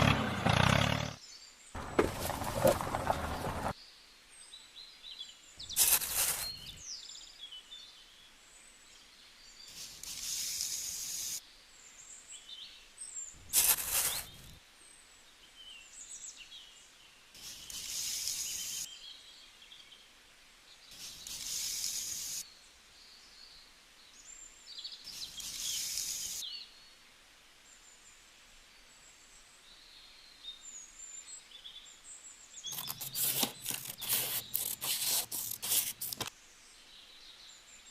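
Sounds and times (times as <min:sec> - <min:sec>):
small birds chirping: 0:01.2 - 0:14.6, 0:15.4 - 0:20.1, 0:20.7 - 0:27.0, 0:28.8 - 0:37.9
short hissing rasping bursts: 0:05.7 - 0:06.7, 0:09.7 - 0:11.4, 0:13.5 - 0:14.5, 0:17.4 - 0:18.9, 0:21.0 - 0:22.4, 0:25.2 - 0:26.4, 0:32.7 - 0:36.3.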